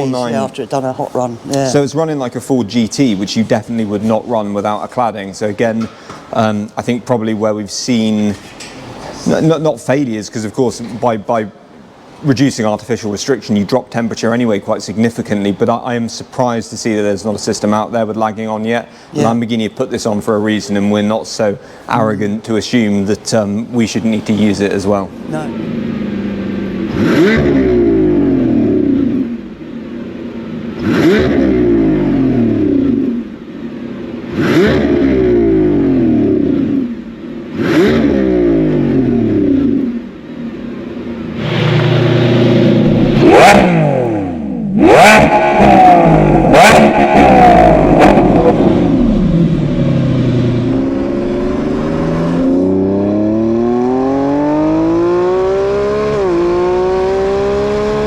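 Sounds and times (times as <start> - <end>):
car engine revving with exhaust cracks: 23.1 - 58.0.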